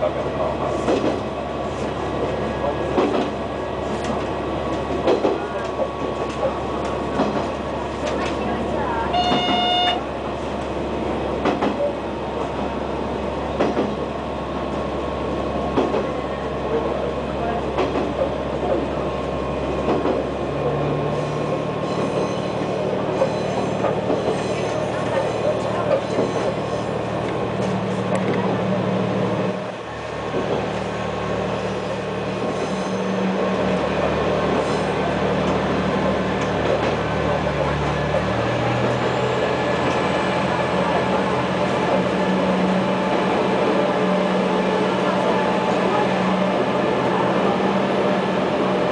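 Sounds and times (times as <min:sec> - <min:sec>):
railcar engine and wheels droning: 0:00.0 - 0:48.9
sharp knocks from track: 0:11.4 - 0:11.8, 0:13.6 - 0:14.0.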